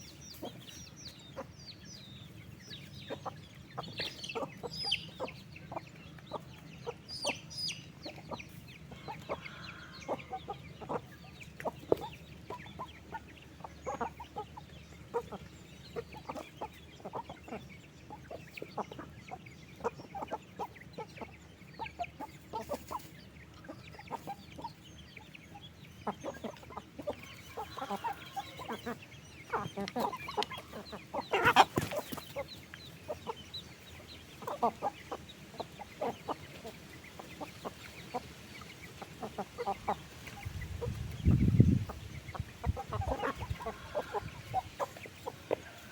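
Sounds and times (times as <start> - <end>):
chickens clucking: 0.0 - 45.9
chicken squawk: 26.2 - 32.5, 41.9 - 45.9.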